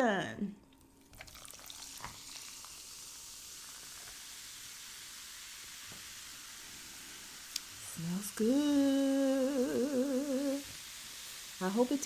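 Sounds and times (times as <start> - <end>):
soda fizzing in a cup: 1.0 - 9.6.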